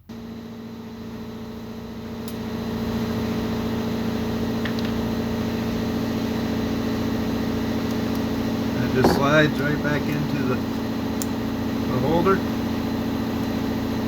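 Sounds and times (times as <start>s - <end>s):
air compressor running: 8.8s - 10.0s.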